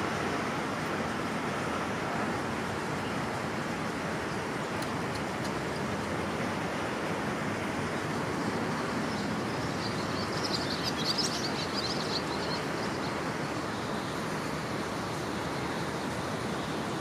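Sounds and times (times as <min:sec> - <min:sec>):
outdoor background hiss: 0:00.0 - 0:17.0
small bird chirping: 0:09.1 - 0:13.2.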